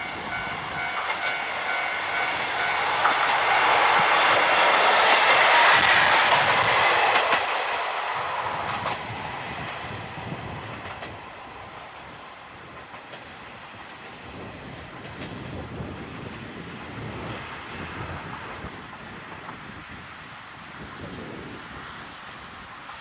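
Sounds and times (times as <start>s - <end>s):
train passing: 0.0s - 23.0s
train wheels clicking over rail joints: 0.1s - 16.3s.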